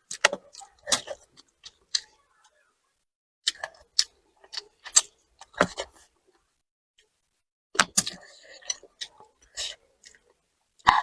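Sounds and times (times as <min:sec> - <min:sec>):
eating clicks and smacks: 0:00.0 - 0:02.2, 0:03.5 - 0:05.9.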